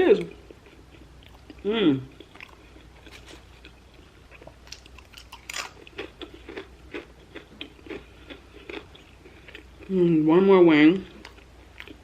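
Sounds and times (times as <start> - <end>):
person chewing food: 0.2 - 9.9, 11.1 - 12.0.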